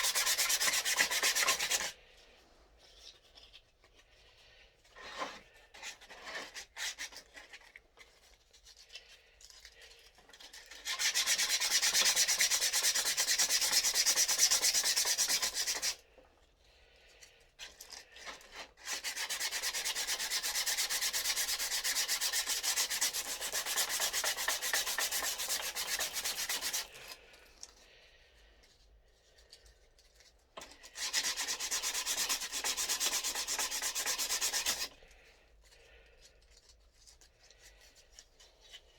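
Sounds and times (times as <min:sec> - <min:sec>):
sanding wood: 0:00.0 - 0:01.9, 0:10.8 - 0:16.0, 0:18.8 - 0:27.0, 0:31.0 - 0:34.9.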